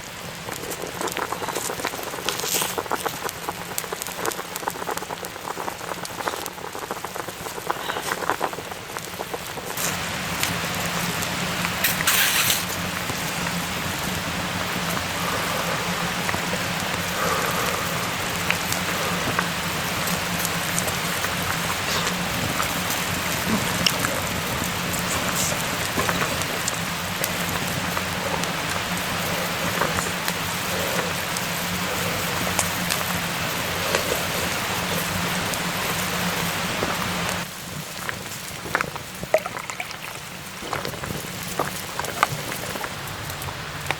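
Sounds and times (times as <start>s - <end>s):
steady rain: 0.0s - 43.9s
water drips: 39.2s - 43.0s.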